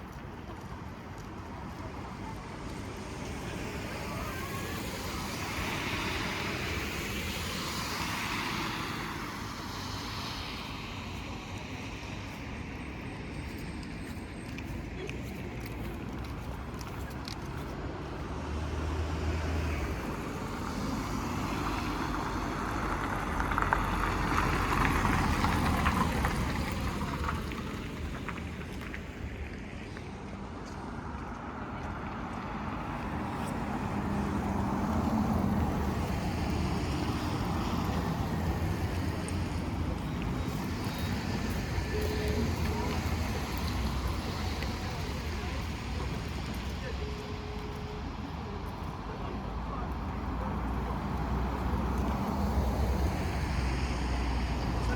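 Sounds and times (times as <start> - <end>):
road traffic rumble: 0.0 - 54.9.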